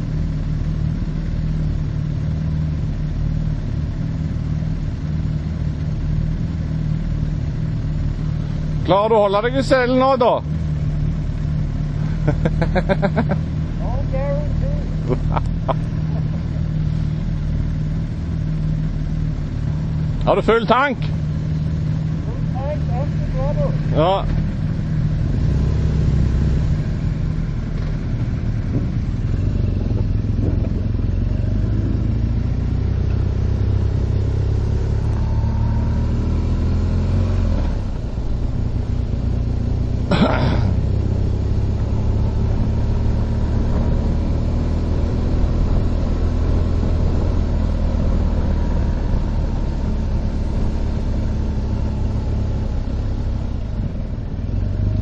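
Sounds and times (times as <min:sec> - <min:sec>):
motorcycle engine running: 0:00.0 - 0:55.0
wind noise: 0:28.6 - 0:31.2.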